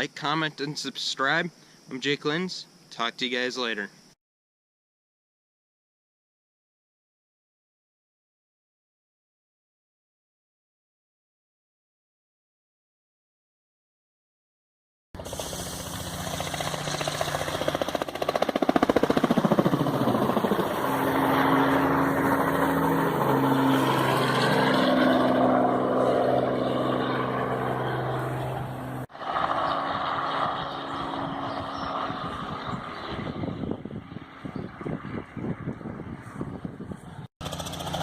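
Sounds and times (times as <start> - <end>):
helicopter flying overhead: 15.2 - 38.0.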